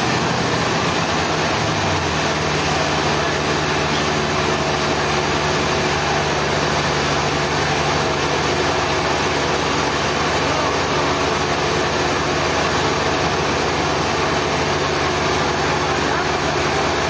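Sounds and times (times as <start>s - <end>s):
sawmill machinery engine running: 0.0s - 17.0s.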